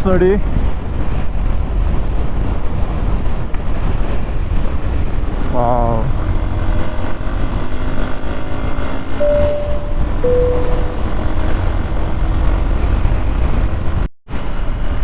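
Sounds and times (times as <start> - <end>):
short steady tones: 9.2 - 11.4.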